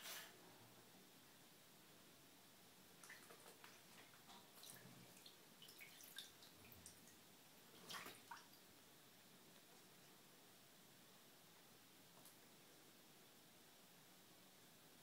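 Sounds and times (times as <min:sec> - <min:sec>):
water splashes and drips: 0:03.0 - 0:08.6.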